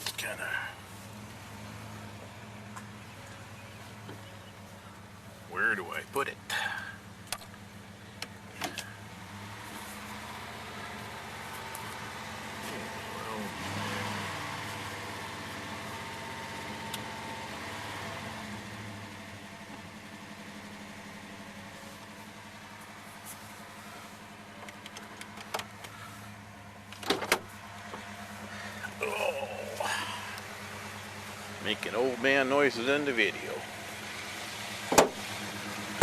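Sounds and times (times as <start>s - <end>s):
truck engine idling: 0.0s - 36.0s
sharp knocks: 34.9s - 35.2s.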